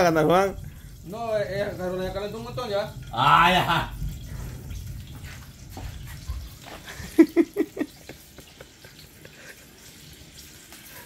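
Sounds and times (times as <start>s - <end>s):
eggs and sausages sizzling: 0.0s - 11.0s
person laughing: 6.9s - 9.7s.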